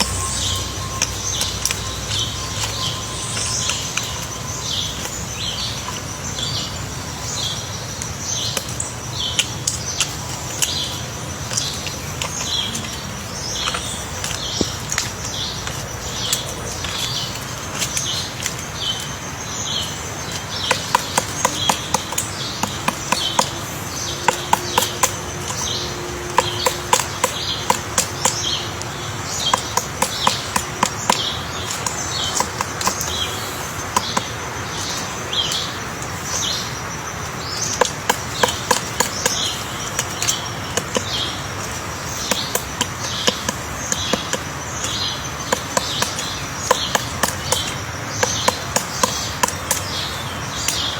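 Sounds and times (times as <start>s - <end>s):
steady high whine: 0.0s - 8.0s
woodpecker tapping wood: 0.0s - 50.9s.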